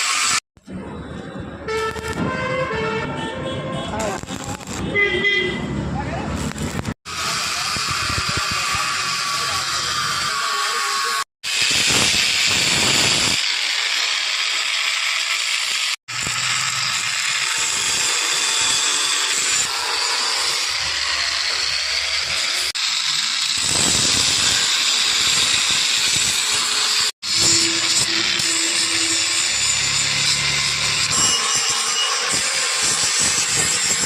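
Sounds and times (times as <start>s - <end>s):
arc welding hiss: 4.1s - 4.8s, 11.5s - 17.5s, 22.3s - 30.5s.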